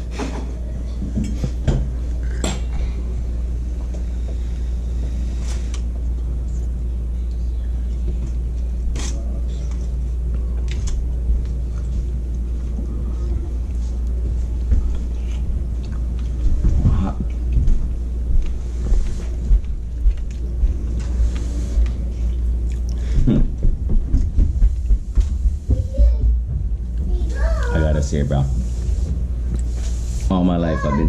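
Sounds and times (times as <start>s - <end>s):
man chewing: 14.9s - 16.4s, 21.1s - 23.5s.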